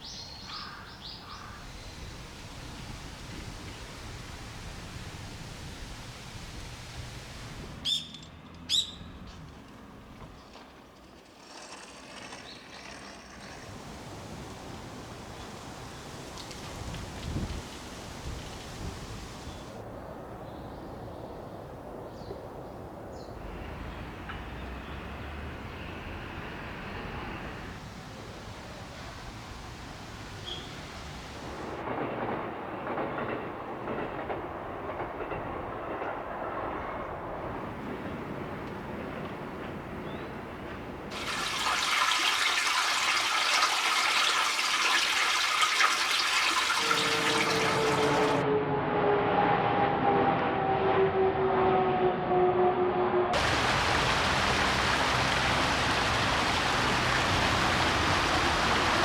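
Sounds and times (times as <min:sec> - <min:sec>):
stream water flowing: 0:00.0 - 0:07.9, 0:13.4 - 0:20.3, 0:23.4 - 0:31.8, 0:40.9 - 0:48.4, 0:53.4 - 0:59.0
bird chirps: 0:07.8 - 0:09.1, 0:30.4 - 0:31.0.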